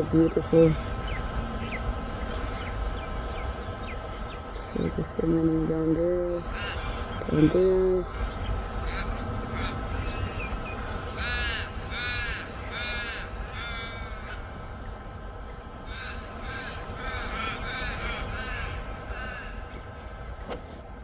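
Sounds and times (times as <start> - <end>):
crow cawing: 6.3 - 14.8, 15.8 - 20.2.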